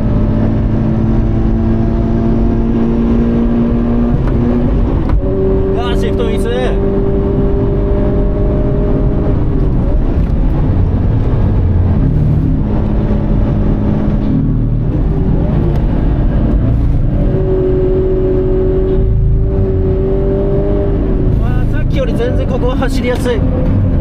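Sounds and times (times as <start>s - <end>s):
car engine revving hard: 0.0s - 24.0s
tyre and road rumble: 7.4s - 24.0s.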